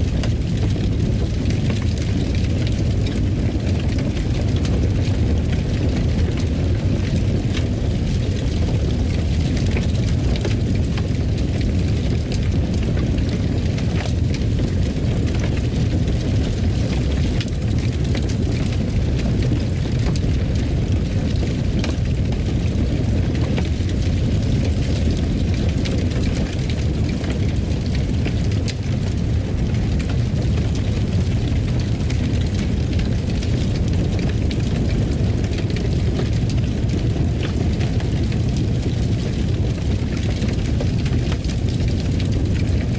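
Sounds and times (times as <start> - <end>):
fire pops and crackles: 0.0 - 42.9
fire roaring in fireplace: 0.0 - 42.9.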